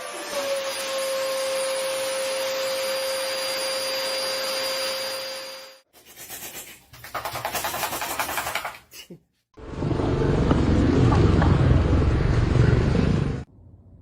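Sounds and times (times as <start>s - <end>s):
fast rhythmic rasping: 5.9s - 9.1s.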